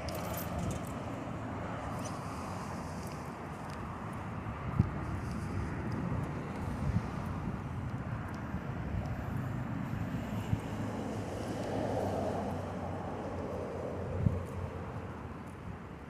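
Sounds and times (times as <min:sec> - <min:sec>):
wind and tyre noise: 0:00.0 - 0:16.0.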